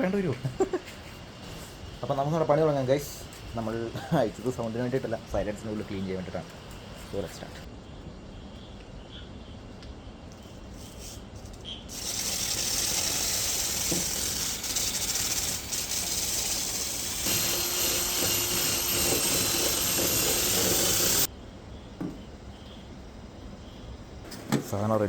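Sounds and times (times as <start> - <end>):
loud steady hissing: 11.9 - 24.2.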